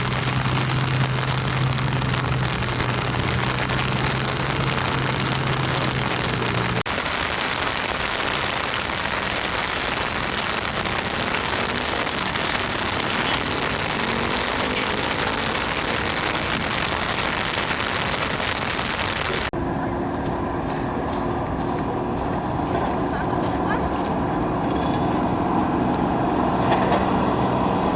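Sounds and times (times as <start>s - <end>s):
passing vehicles and tyres hiss: 0.0s - 6.8s, 7.6s - 27.9s
dull engine hum: 0.0s - 6.9s, 9.8s - 27.9s
engine rising in pitch: 10.6s - 17.2s.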